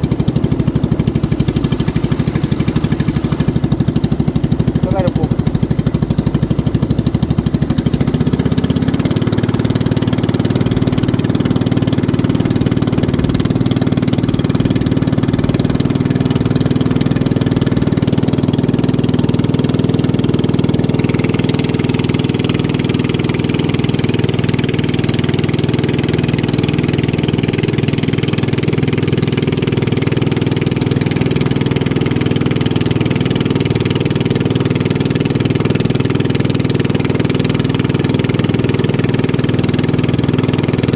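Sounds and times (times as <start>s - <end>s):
boat engine running: 0.0s - 40.9s
hiss: 1.2s - 4.2s.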